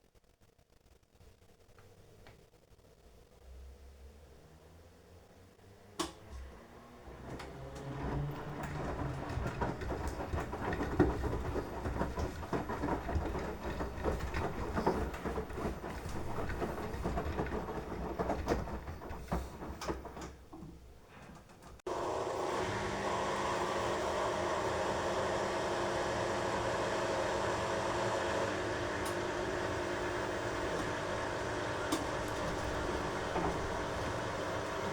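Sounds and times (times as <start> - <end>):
washing machine motor hum: 4.0 - 34.9
laundry and water sloshing in drum: 7.2 - 20.7, 31.8 - 34.9.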